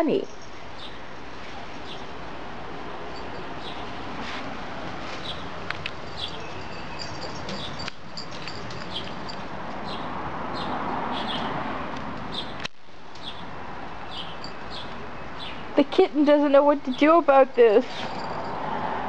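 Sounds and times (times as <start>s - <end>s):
steady background noise: 0.0s - 19.0s
small birds chirping: 0.1s - 2.2s, 3.2s - 3.9s, 5.2s - 11.5s, 13.2s - 15.8s.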